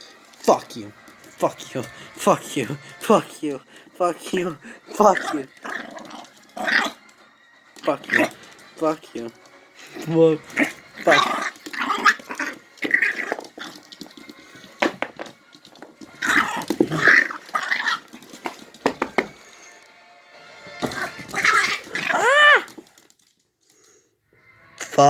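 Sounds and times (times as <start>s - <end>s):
puppy high cry: 4.9s - 7.0s, 9.9s - 14.7s, 16.2s - 19.3s, 20.8s - 22.8s
puppy growling and barking: 4.9s - 7.2s, 7.9s - 8.6s, 9.8s - 15.0s, 15.7s - 19.4s, 20.7s - 23.0s.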